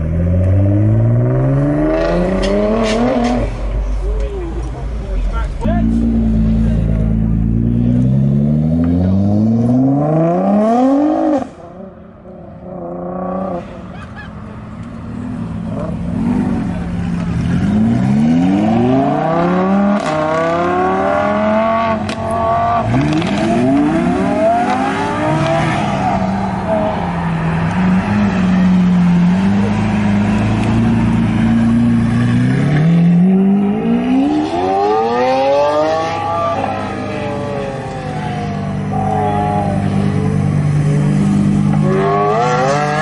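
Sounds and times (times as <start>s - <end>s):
car engine accelerating hard: 14.8s - 43.0s.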